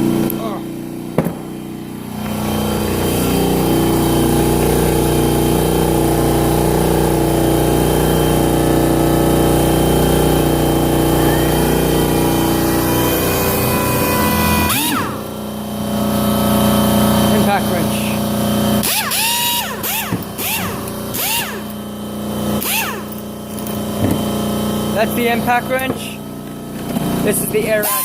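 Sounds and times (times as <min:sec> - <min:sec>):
pneumatic motor humming: 0:00.0 - 0:28.0.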